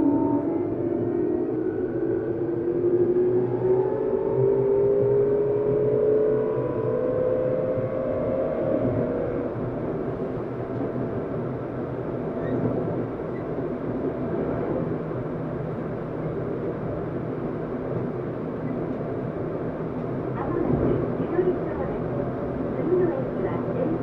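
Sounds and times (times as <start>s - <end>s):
train wheels rumbling on rail: 8.9s - 24.0s.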